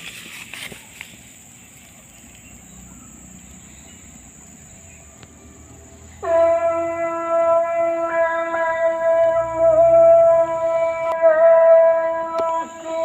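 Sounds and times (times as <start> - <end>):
high-pitched whine: 2.8 - 13.0.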